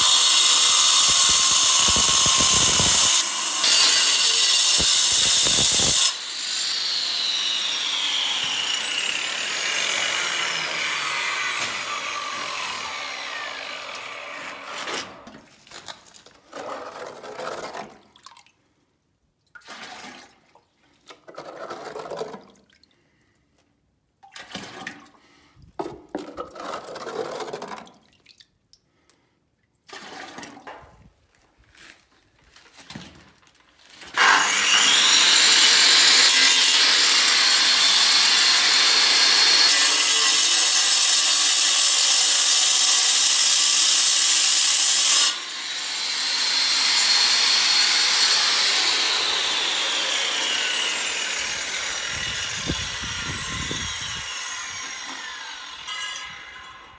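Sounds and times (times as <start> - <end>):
power tool whining and cutting: 0.0 - 15.2, 34.1 - 56.9.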